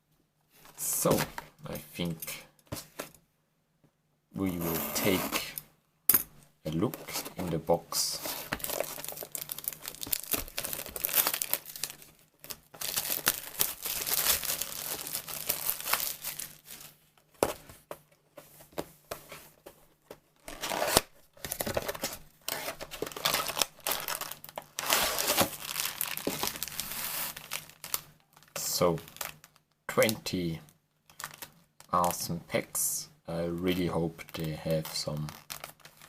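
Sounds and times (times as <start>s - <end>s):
packaging crinkling and tearing: 8.2s - 17.0s, 20.4s - 30.2s, 31.0s - 32.2s, 33.6s - 36.0s.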